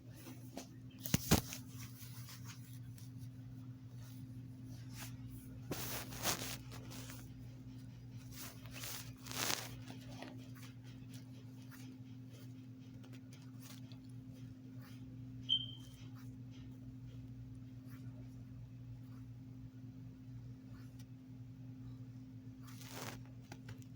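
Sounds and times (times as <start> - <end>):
low electrical hum: 0.0 - 23.9
handling rustling and knocks: 0.1 - 3.3, 4.8 - 7.4.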